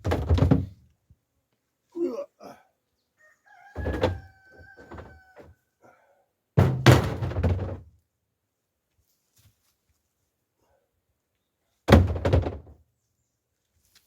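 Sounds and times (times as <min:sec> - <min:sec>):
firewood logs thunking onto pile: 0:00.0 - 0:00.8, 0:06.6 - 0:08.0, 0:11.9 - 0:12.8.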